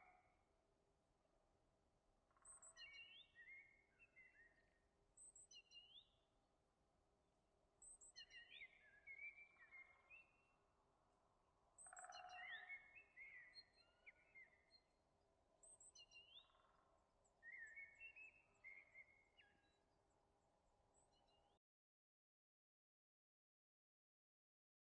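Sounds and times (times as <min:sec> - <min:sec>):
faint birdsong: 0:01.3 - 0:06.8, 0:07.5 - 0:21.6.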